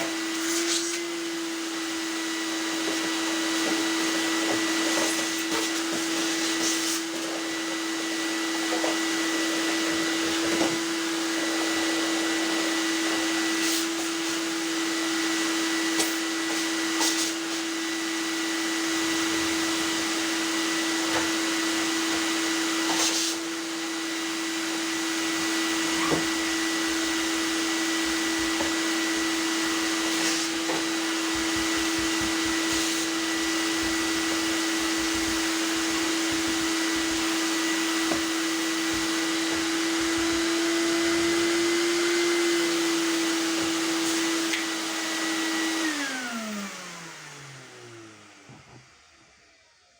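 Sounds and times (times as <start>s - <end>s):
tumble dryer humming: 18.8s - 43.9s.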